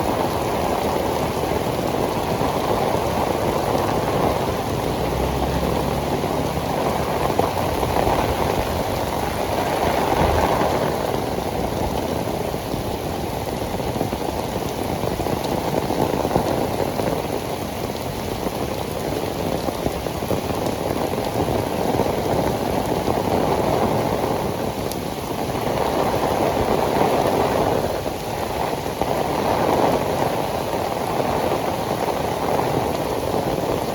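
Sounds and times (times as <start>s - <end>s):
heavy rain hitting the ground: 0.0s - 33.9s.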